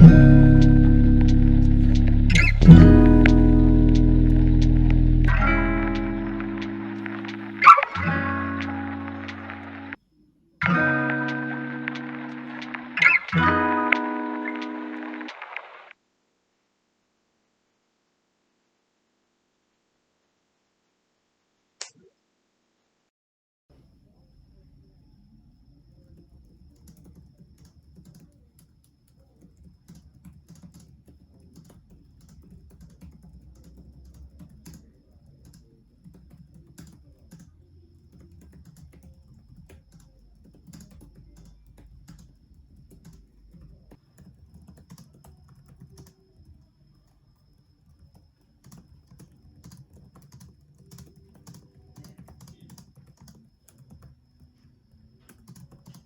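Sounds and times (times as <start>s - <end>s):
laptop keyboard typing: 0.0s - 10.0s, 11.0s - 15.4s, 26.0s - 46.7s, 47.6s - 54.6s, 55.2s - 56.0s.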